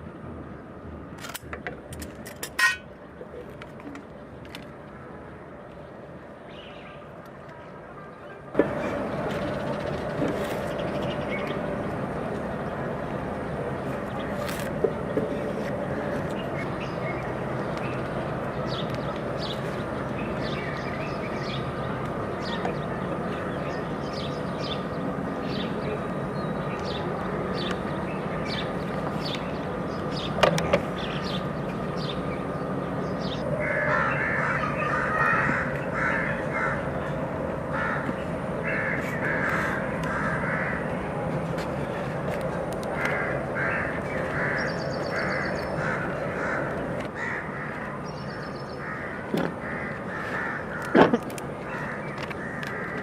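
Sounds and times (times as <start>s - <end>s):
harsh bird calls: 14.0s - 41.2s, 42.9s - 53.0s.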